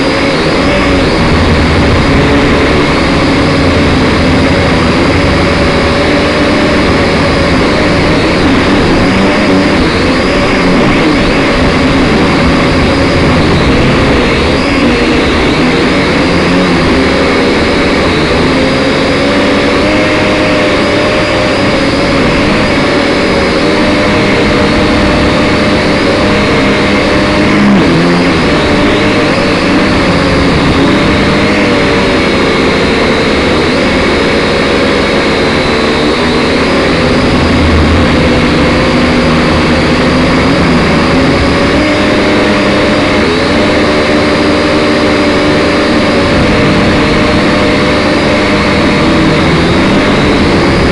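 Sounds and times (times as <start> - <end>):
drone motors whining: 0.0 - 50.9.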